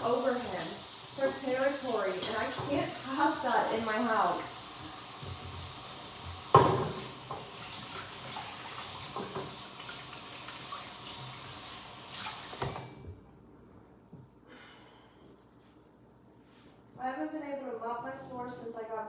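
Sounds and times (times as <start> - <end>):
water running from a tap: 0.0 - 13.0.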